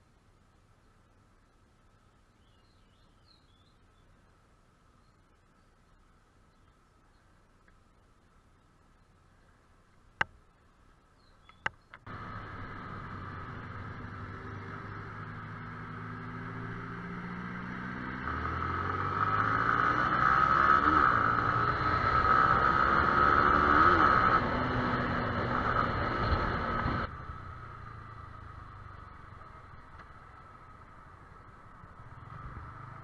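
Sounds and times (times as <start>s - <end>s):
wind and road hiss: 0.0s - 33.0s
motorcycle engine accelerating: 12.0s - 33.0s.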